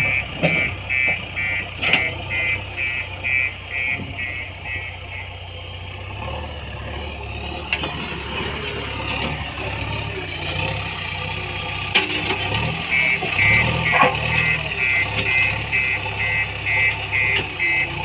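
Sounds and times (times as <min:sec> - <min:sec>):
fast high beeping: 0:00.0 - 0:05.4, 0:12.9 - 0:18.0
backhoe diesel engine running: 0:00.0 - 0:18.0.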